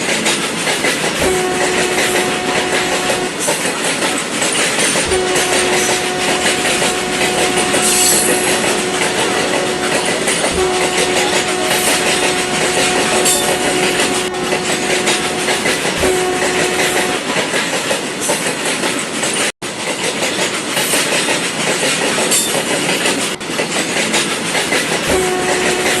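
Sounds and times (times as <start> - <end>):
model train running on track: 0.0 - 26.0
held steady tone: 1.2 - 3.4, 4.8 - 17.4, 25.1 - 26.0.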